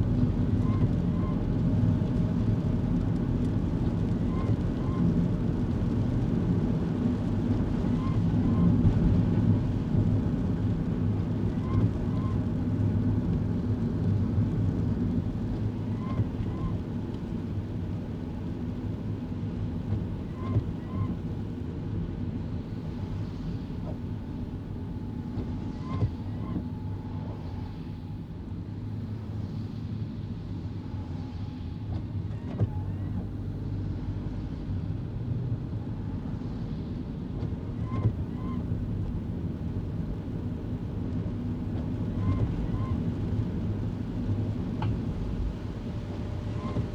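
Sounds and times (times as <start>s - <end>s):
road and tyre noise: 0.0s - 46.9s
car engine and tyre drone: 36.0s - 46.9s.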